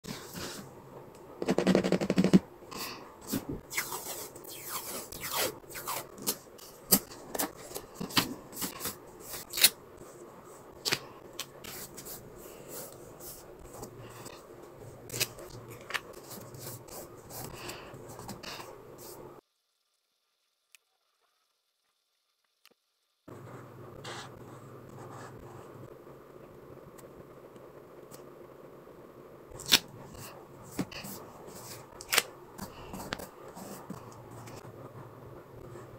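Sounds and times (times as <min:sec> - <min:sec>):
paper rustling: 0:03.2 - 0:10.1
pen scratching on paper: 0:15.1 - 0:19.2, 0:32.6 - 0:34.7.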